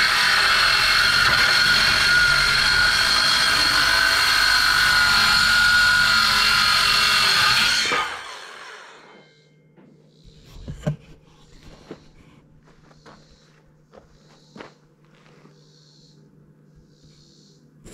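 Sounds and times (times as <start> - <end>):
electric power saw running: 0.0 - 9.3.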